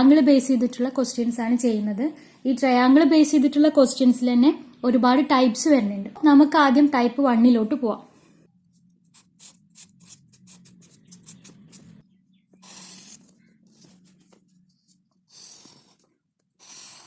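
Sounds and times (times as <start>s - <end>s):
pen strokes and taps: 8.8s - 12.0s, 12.6s - 17.0s.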